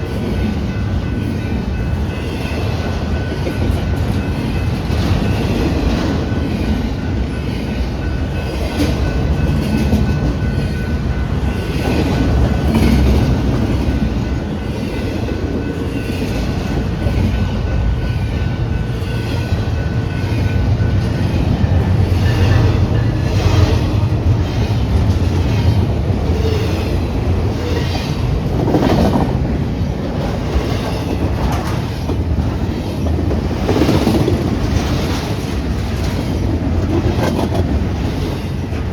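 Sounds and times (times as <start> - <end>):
train rumbling past: 0.0 - 38.9
wheels clacking over rail joints: 18.6 - 38.9.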